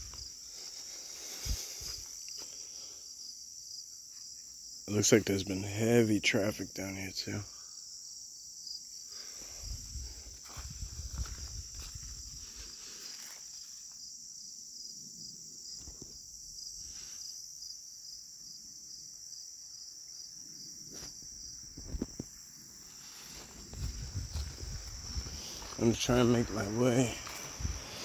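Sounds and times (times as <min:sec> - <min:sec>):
insect chorus buzzing: 0:00.0 - 0:28.0.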